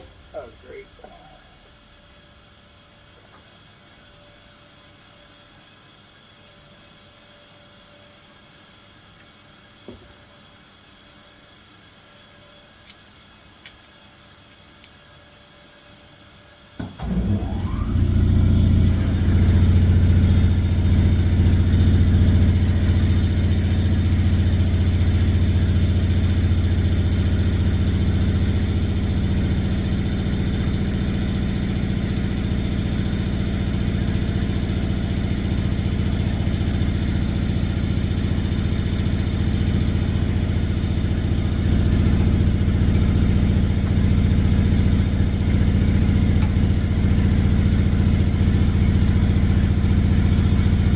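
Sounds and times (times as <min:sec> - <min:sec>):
engine starting and running: 0:16.8 - 0:50.9.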